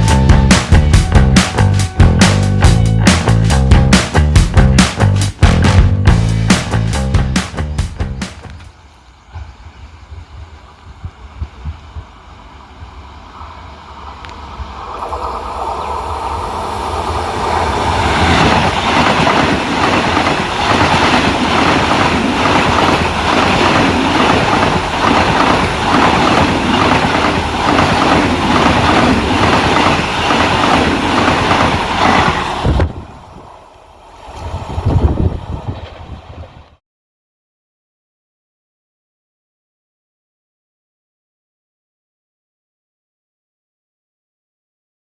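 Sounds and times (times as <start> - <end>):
train passing at speed: 0.0 - 36.8
wheels clattering over rail joints: 13.4 - 33.0.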